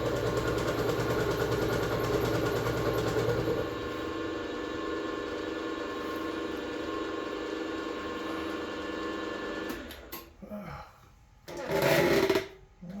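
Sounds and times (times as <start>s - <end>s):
air compressor running: 0.0s - 10.1s.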